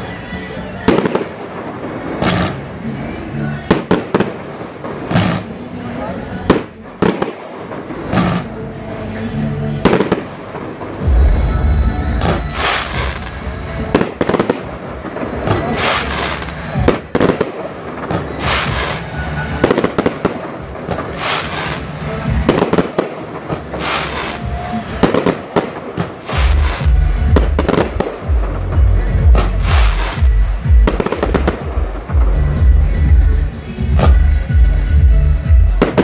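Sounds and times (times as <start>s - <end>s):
crackling firework tails: 9.8s - 32.6s
firework shell bursts: 12.2s - 13.4s, 14.0s - 28.6s.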